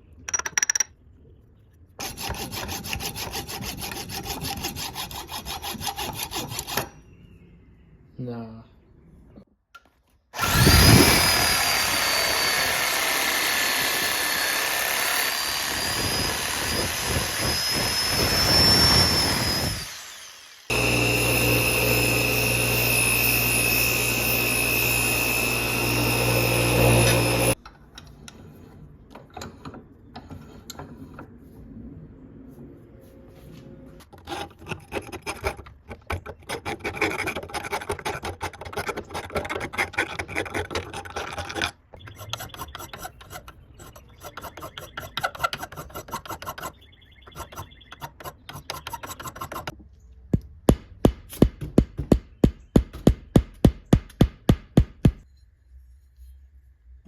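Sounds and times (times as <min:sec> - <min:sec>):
power tool high whine: 0:10.4 - 0:27.6
power tool steady hum: 0:10.4 - 0:27.6.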